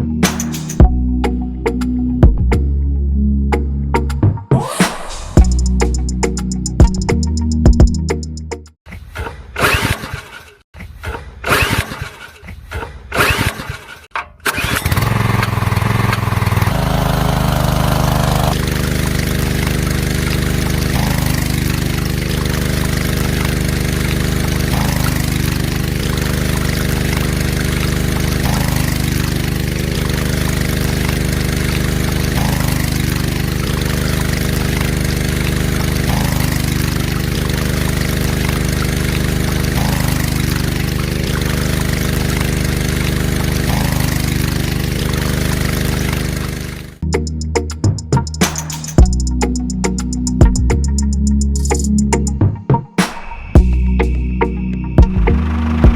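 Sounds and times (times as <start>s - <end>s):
small engine firing and running: 11.4s - 12.4s, 13.1s - 47.0s, 55.2s - 55.9s.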